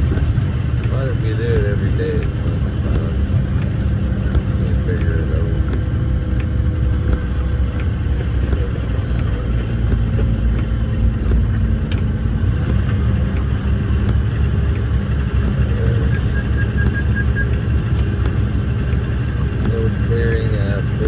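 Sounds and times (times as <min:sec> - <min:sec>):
truck diesel engine rumble: 0:00.0 - 0:21.0.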